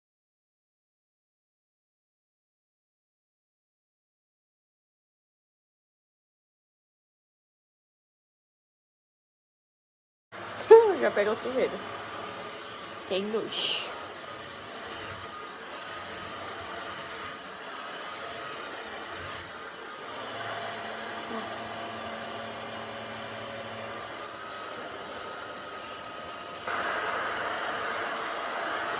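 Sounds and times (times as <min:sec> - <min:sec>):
stick vacuum cleaner whine: 0:10.4 - 0:28.9.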